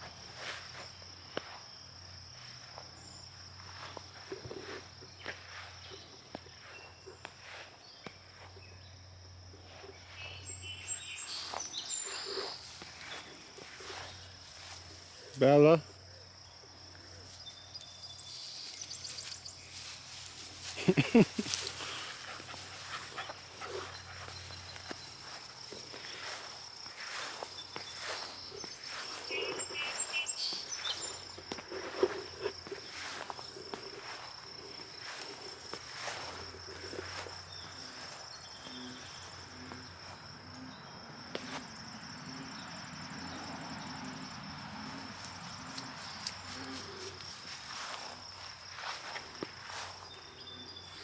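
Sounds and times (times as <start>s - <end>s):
insects singing: 0.0s - 51.0s
footsteps: 2.4s - 8.6s, 11.4s - 15.4s, 18.4s - 40.2s, 44.8s - 50.7s.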